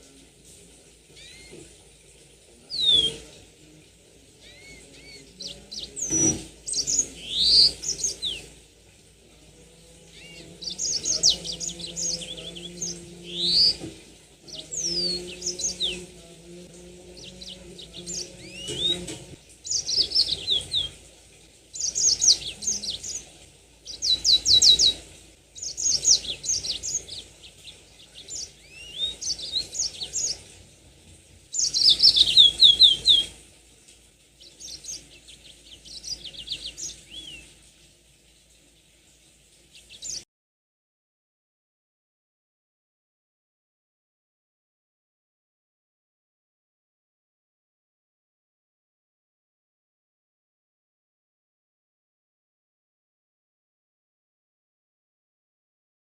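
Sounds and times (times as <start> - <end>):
canary singing: 1.1 - 1.8, 2.6 - 30.7, 31.5 - 33.5, 34.3 - 37.6.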